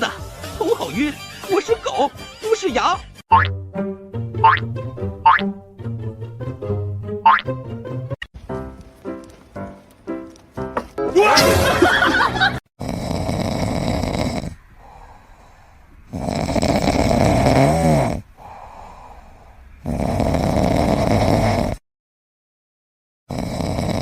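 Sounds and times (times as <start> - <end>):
pet snoring: 12.8 - 15.0, 16.1 - 18.6, 19.8 - 21.8, 23.3 - 24.0.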